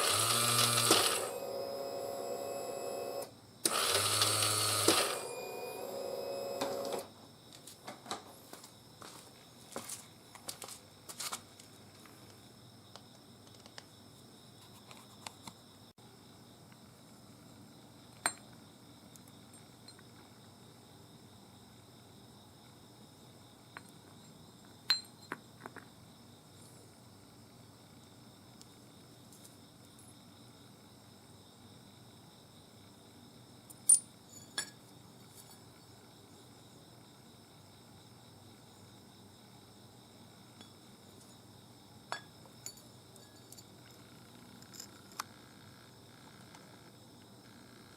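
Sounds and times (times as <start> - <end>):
faint high whine: 0.0 - 7.2
insects chirring: 0.0 - 47.9.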